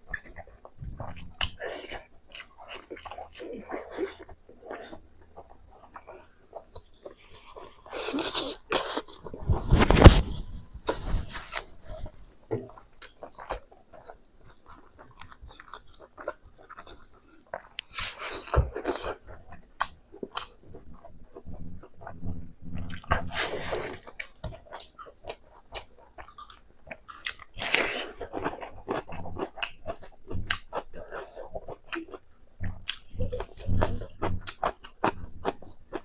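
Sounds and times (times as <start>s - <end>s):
close chewing and crunching: 0.0s - 36.0s.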